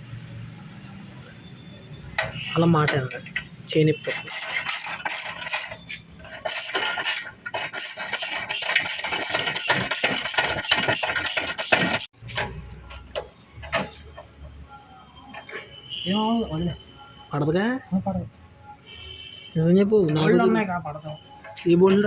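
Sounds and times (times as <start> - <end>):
metal tools clinking against car parts: 2.1 - 14.2.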